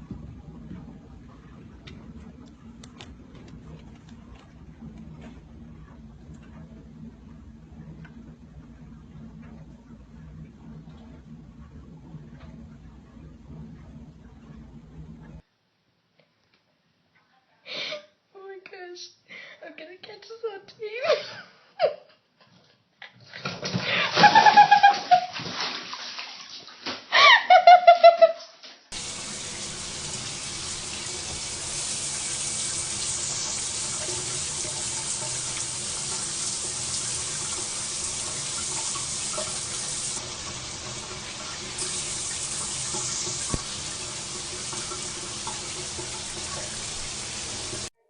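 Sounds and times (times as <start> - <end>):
running water rushing: 28.9 - 47.9.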